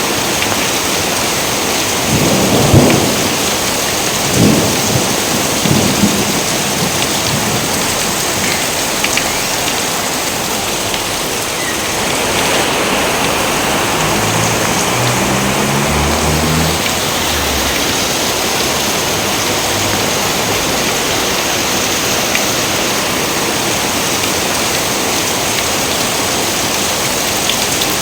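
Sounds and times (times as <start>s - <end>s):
heavy rain falling: 0.0s - 28.0s
thunder rumbling: 1.9s - 9.9s, 10.6s - 20.9s.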